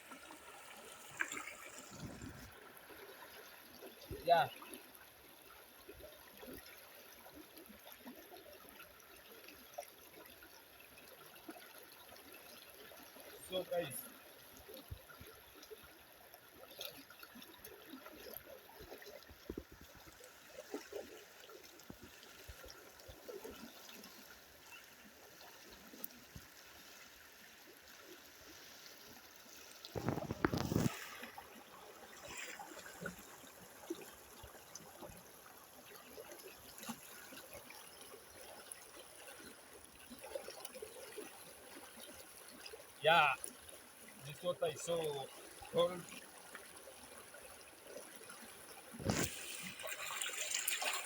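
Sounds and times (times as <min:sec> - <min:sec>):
river water trickling: 0:00.0 - 0:51.0
splashes of person washing: 0:32.2 - 0:33.1, 0:49.0 - 0:51.0.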